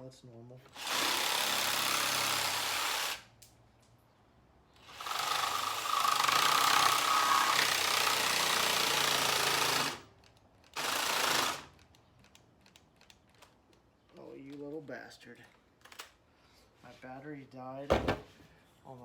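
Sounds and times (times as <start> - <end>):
jigsaw sawing wood: 0.7 - 3.2, 4.8 - 10.0, 10.8 - 11.7.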